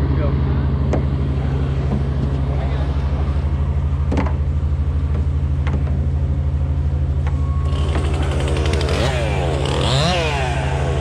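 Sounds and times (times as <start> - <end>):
large engine idling: 0.0 - 11.0
higher buzzing engine: 7.0 - 11.0.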